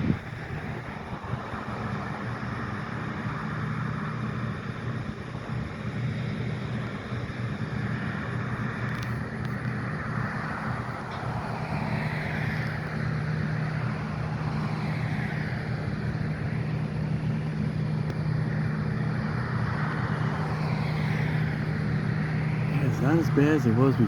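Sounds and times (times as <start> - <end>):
low engine hum: 0.0 - 24.0
road traffic: 0.0 - 24.0.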